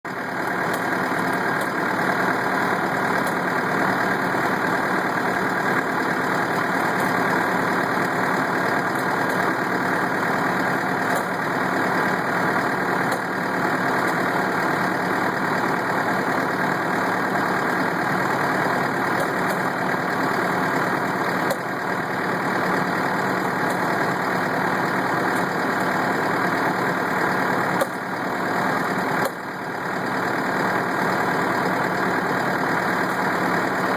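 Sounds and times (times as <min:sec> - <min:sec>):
sprayer engine running: 0:00.1 - 0:33.9.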